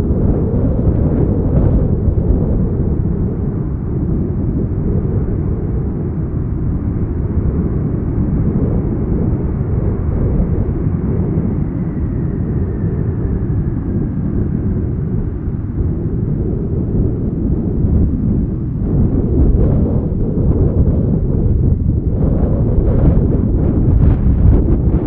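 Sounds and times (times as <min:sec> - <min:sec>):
jet engine rumble: 0:00.0 - 0:25.0
wind buffeting microphone: 0:00.0 - 0:25.0
faint falling whine: 0:06.4 - 0:25.0.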